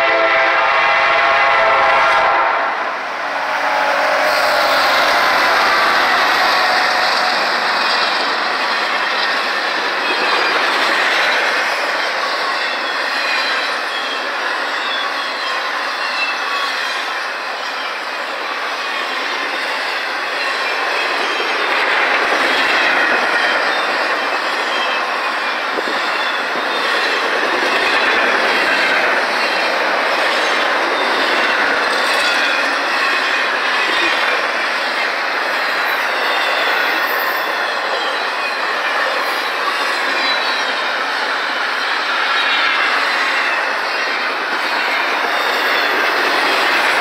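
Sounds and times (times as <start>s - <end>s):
steel wheels running on rails: 2.8s - 47.0s
faint high wheel squeal: 3.3s - 10.6s, 12.0s - 21.6s, 35.4s - 46.7s.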